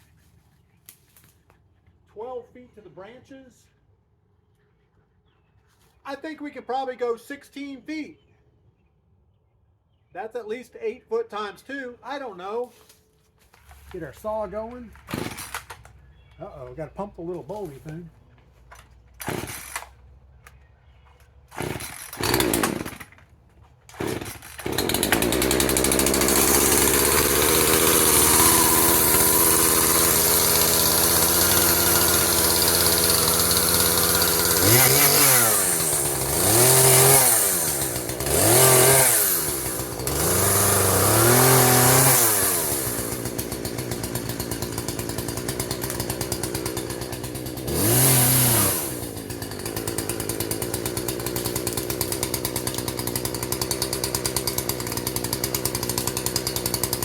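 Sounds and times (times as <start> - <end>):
chainsaw starter cord pulls: 13.5 - 16.0, 18.7 - 20.6, 21.4 - 57.0
chainsaw running and revving: 15.0 - 15.7, 19.2 - 19.9, 21.5 - 23.2, 23.9 - 57.0.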